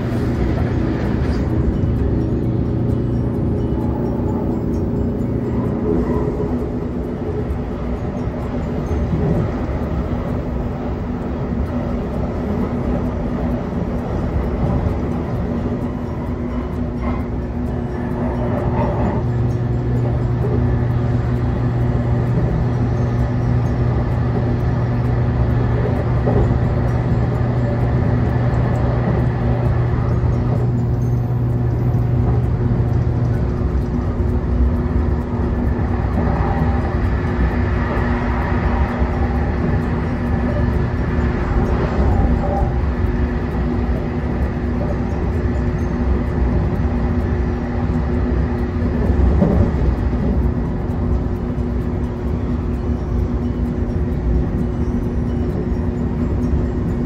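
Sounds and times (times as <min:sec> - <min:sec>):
constant low hum: 0:00.0 - 0:57.0
train running rumble: 0:00.0 - 0:57.0.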